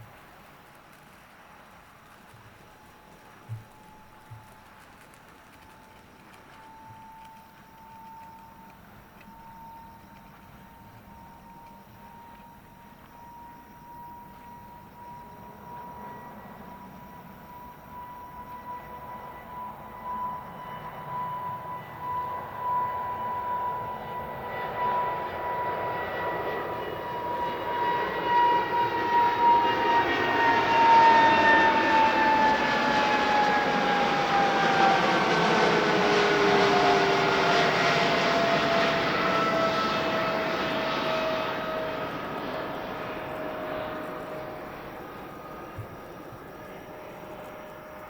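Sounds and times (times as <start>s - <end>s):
jet airliner passing by: 0.0s - 48.0s.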